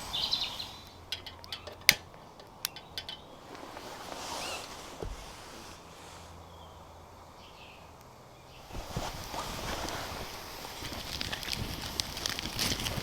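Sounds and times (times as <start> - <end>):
soft hiss: 0.0 - 13.0
wood fire crackling: 0.8 - 5.6, 8.7 - 13.0.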